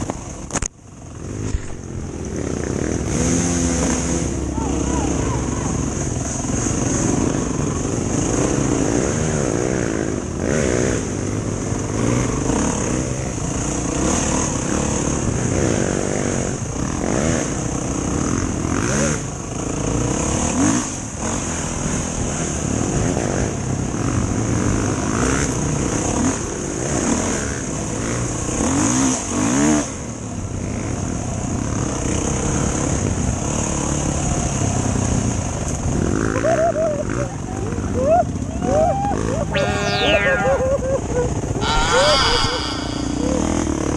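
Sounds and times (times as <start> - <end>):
motorcycle engine revving: 1.1 - 19.3.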